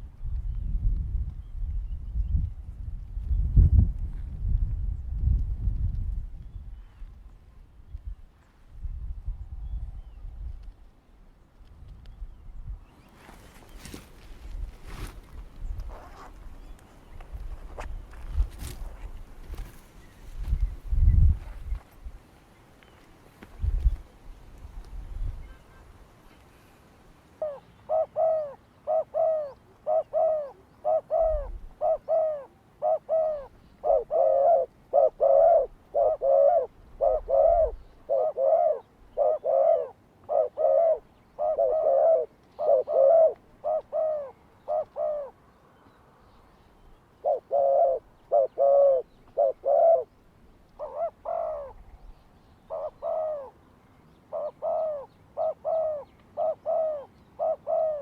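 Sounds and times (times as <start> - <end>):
dove cooing: 27.4 - 45.4, 47.2 - 50.1, 50.8 - 52.0, 52.7 - 53.6, 54.3 - 58.0.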